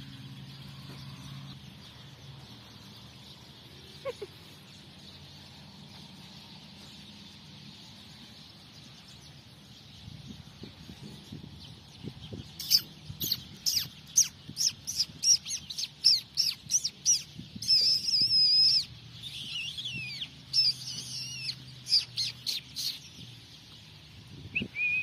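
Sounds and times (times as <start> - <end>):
bird chirping: 0.0 - 25.0
bird whistled note: 24.6 - 25.0.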